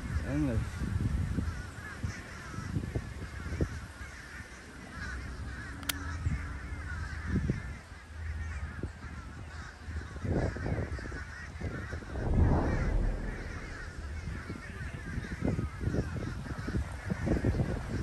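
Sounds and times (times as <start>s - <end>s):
low rumble: 12.0s - 15.2s.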